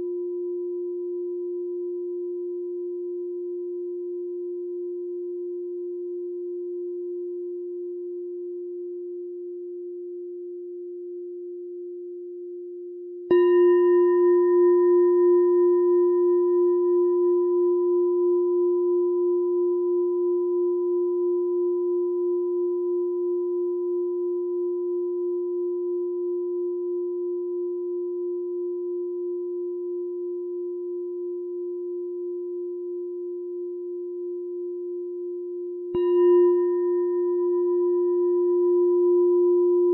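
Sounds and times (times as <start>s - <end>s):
meditation bell ringing: 13.3s - 39.9s.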